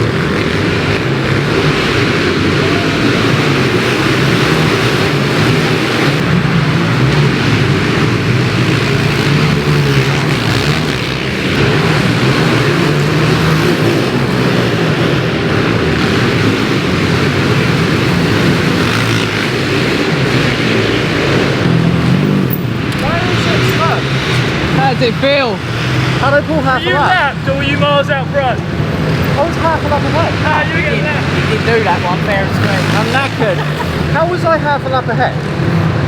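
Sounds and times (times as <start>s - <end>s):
pit bike engine revving: 0.0s - 36.0s.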